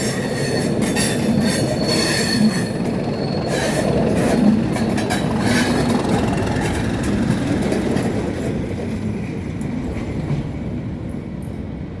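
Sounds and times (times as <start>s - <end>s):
train wheels clicking over rail joints: 0.0s - 11.6s
diesel locomotive engine running: 2.9s - 8.4s.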